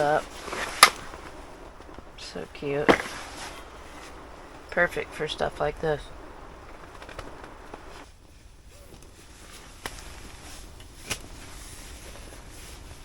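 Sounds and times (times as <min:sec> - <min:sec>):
steady low hiss: 0:00.0 - 0:13.0
sharp clicks: 0:00.5 - 0:08.1.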